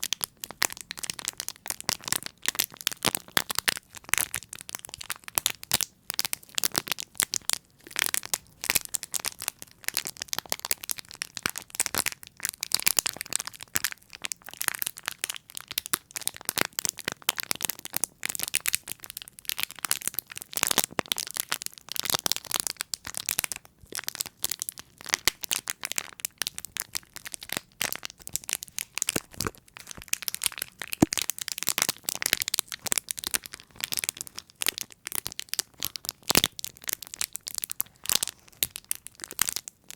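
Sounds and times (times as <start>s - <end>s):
crackling and tapping clicks: 27.3s - 37.8s.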